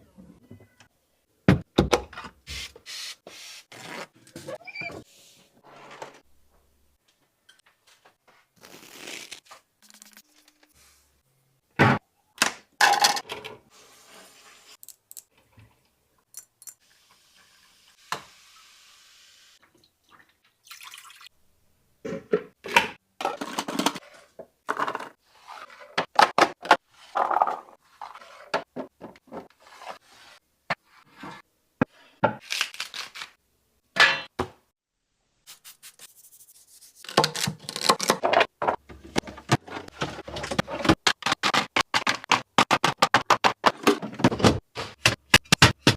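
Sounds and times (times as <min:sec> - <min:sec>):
liquid pouring: 0:20.2 - 0:21.3.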